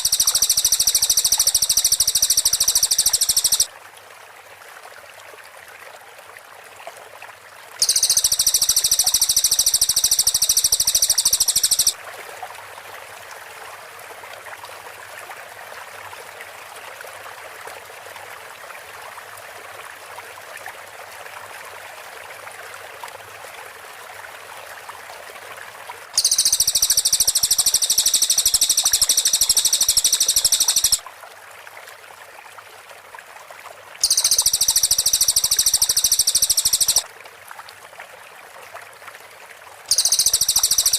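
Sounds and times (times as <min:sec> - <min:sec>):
background hiss: 0:00.0 - 0:03.7, 0:07.8 - 0:12.0, 0:26.2 - 0:31.0, 0:34.0 - 0:37.0
bird rapid trilling: 0:00.0 - 0:03.7, 0:07.8 - 0:12.0, 0:26.2 - 0:31.0, 0:34.0 - 0:37.0, 0:39.9 - 0:40.9.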